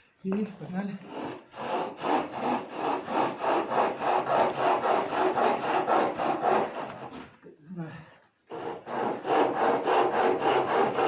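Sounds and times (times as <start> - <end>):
hand saw cutting wood: 1.0 - 7.4, 8.5 - 11.0.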